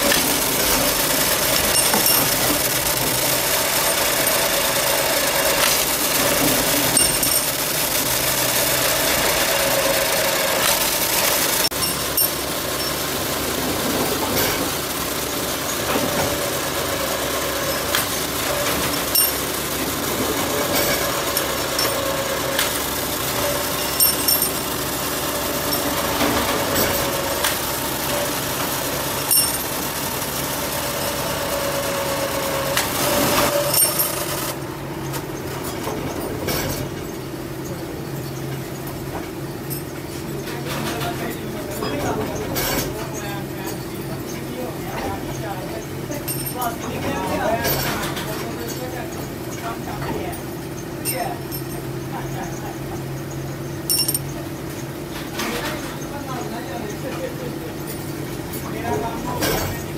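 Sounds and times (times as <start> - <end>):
machinery humming: 0.0 - 36.3.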